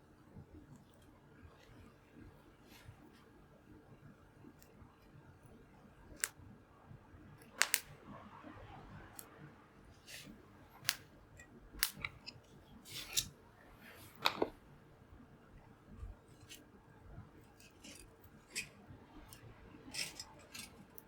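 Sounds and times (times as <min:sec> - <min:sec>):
campfire crackling and popping: 0:07.6 - 0:07.9.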